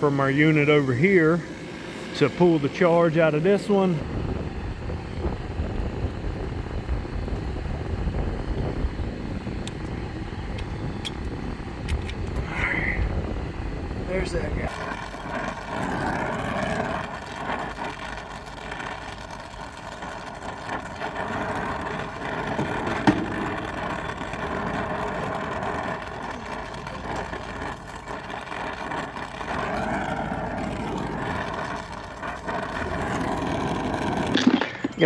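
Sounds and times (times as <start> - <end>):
refrigerant recovery machine running: 0.0 - 35.0.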